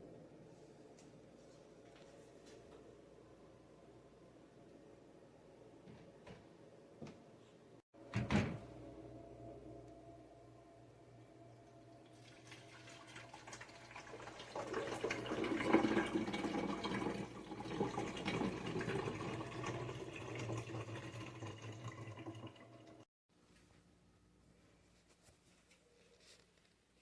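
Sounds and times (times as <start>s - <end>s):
water rushing in dishwasher: 11.8s - 23.1s.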